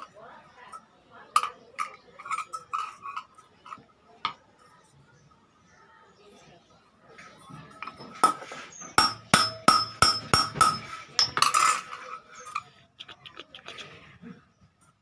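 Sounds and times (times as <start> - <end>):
hammer striking iron: 9.0 - 11.4.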